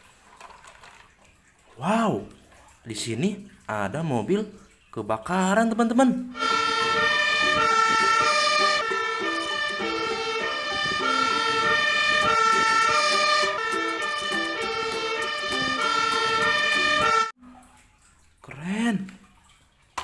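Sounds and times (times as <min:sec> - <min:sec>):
toy electronic tune: 0:06.4 - 0:17.3.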